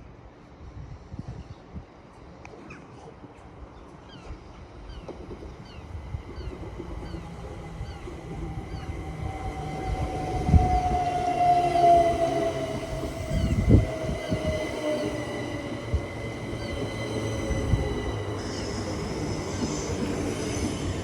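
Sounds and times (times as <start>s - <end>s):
electric train rumbling: 4.3s - 21.0s.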